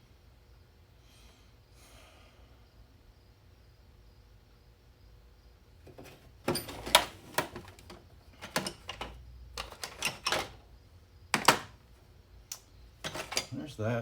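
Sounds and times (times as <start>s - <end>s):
metal tools clattering in toolbox: 5.9s - 10.6s, 11.4s - 11.7s, 13.0s - 13.6s.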